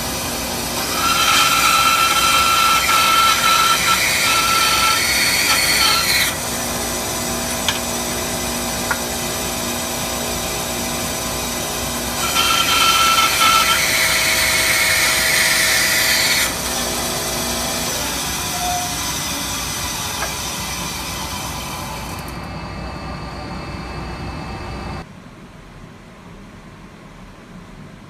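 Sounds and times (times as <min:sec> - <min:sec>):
bandsaw cutting wood: 0:00.0 - 0:22.3.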